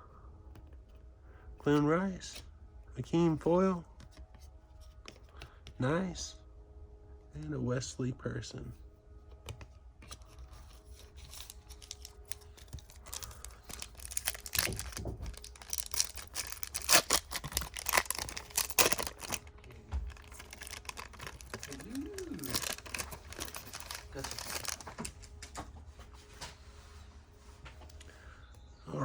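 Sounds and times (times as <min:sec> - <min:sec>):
cards being handled: 0:09.3 - 0:25.7
card pack wrapper crinkling: 0:10.0 - 0:25.6.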